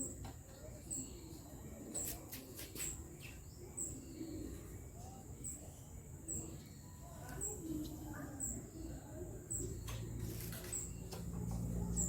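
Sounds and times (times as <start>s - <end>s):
dove cooing: 3.8s - 4.8s.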